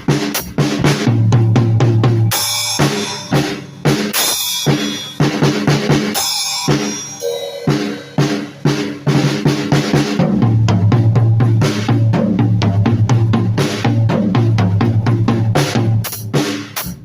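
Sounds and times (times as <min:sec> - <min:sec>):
drum kit playing: 0:00.0 - 0:17.0
cymbal crashes: 0:02.3 - 0:09.4.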